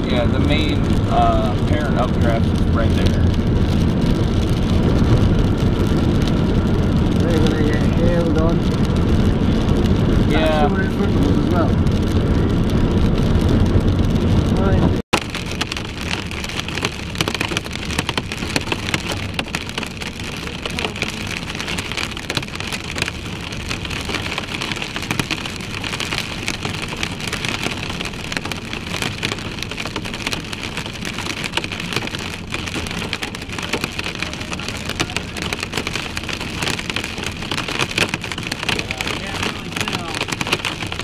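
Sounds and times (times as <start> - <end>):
rain pattering on car roof: 0.0 - 41.0
tyre and road noise: 0.0 - 41.0.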